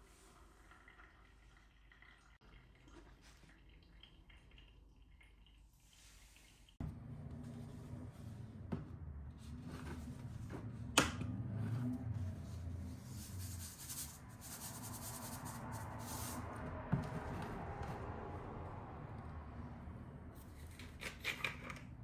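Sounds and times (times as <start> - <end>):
rustling and scraping: 7.4 - 18.1.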